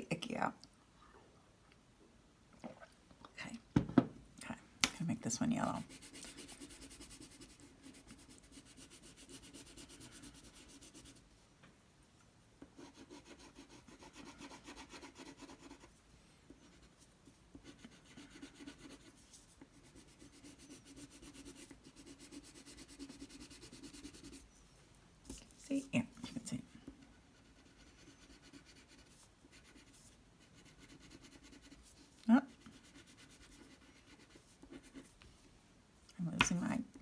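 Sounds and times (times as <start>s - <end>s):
crayon rubbing on paper: 5.8s - 11.2s, 12.8s - 15.9s, 17.6s - 24.4s, 27.3s - 35.1s.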